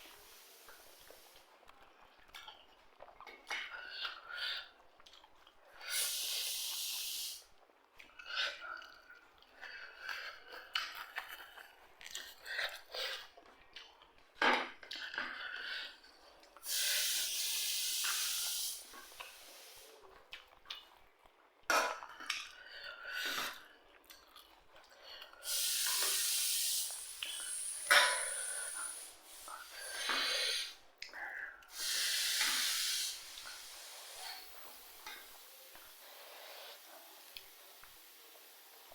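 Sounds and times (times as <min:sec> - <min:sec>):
chewing: 0:00.8 - 0:05.8, 0:07.5 - 0:16.6, 0:20.0 - 0:26.0.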